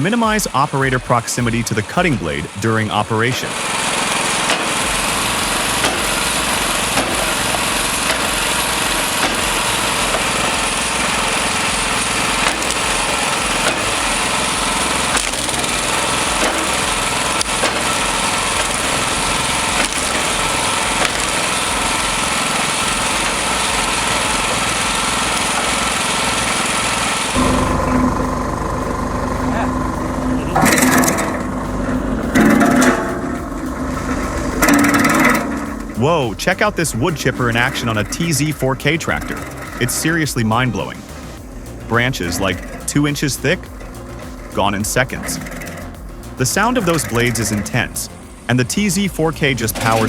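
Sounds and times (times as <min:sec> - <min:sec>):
log splitter engine running: 0:00.0 - 0:50.0
wood cracking as it splits: 0:03.7 - 0:27.4.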